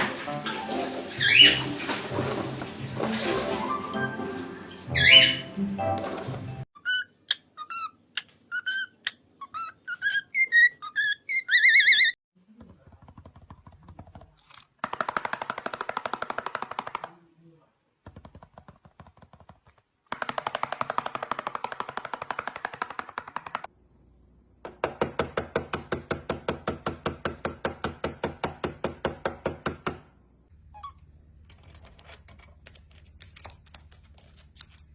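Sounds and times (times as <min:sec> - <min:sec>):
rapid tapping: 0:18.1 - 0:23.7.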